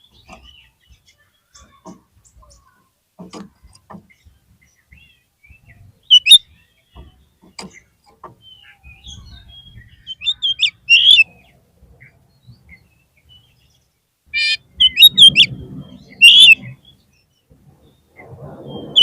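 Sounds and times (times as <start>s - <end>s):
bird singing whistled notes: 4.6s - 7.3s, 8.4s - 13.8s, 14.4s - 19.0s.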